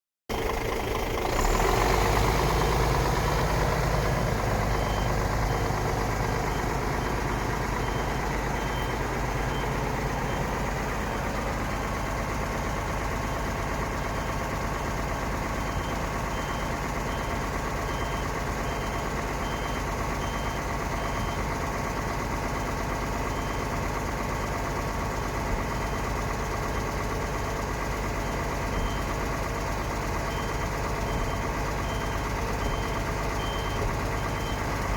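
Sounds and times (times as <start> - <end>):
diesel truck engine idling: 0.3 - 34.9
faint high beep: 4.7 - 10.5.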